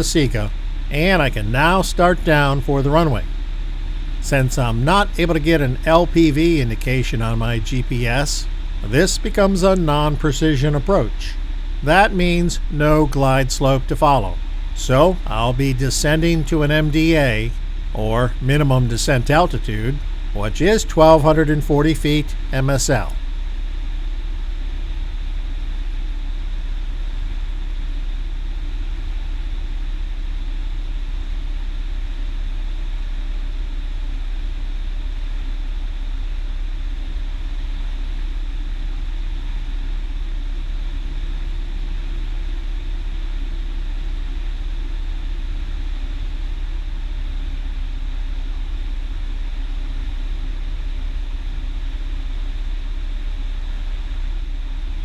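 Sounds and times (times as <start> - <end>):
airplane engine and propeller drone: 0.0 - 23.3.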